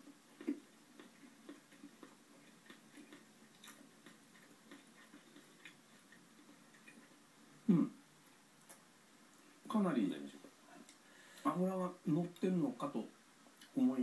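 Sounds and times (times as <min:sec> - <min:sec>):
person chewing with mouth clicks: 0:00.0 - 0:07.2.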